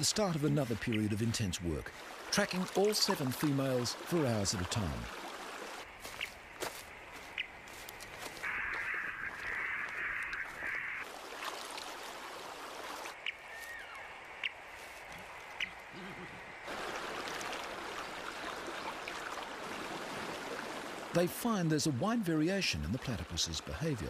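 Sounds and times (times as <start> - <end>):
running water rushing: 0.0 - 24.0
short bird calls: 8.4 - 11.0, 13.2 - 16.4.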